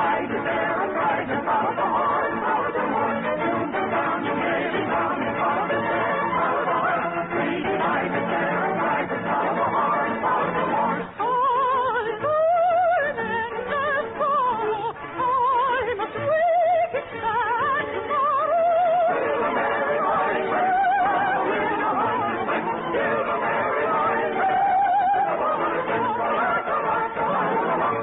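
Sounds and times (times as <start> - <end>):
orchestral accompaniment: 0.0 - 15.8
operatic solo singing with vibrato: 0.0 - 28.0.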